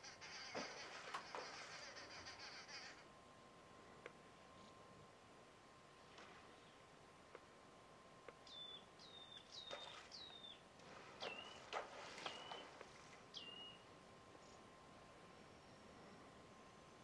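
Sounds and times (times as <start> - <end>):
faint steady tone: 0.0 - 17.0
faint bird whistles: 8.5 - 10.6, 11.2 - 13.9.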